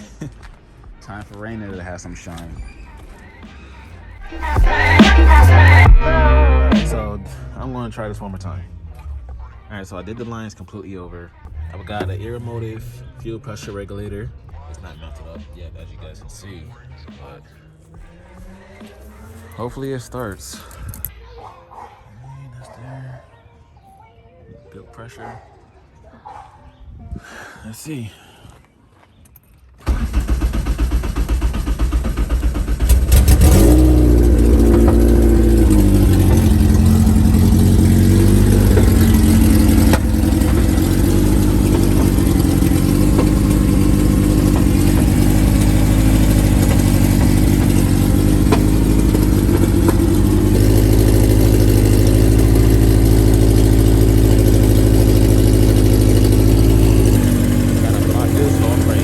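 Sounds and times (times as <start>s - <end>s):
car engine idling: 1.4s - 21.1s, 29.8s - 59.0s
car engine cranking and starting: 2.2s - 10.3s, 11.0s - 13.1s, 29.8s - 59.0s.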